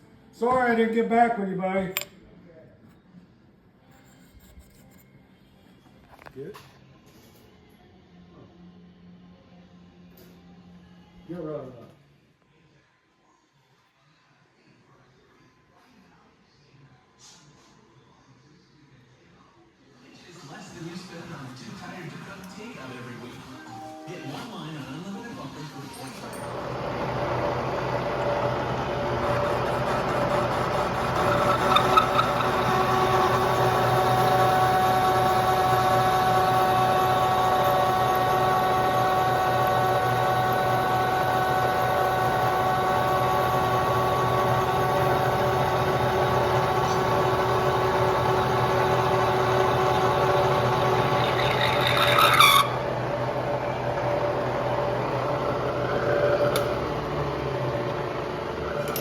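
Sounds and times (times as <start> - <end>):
vehicle engine drone with whine: 26.2 - 59.0.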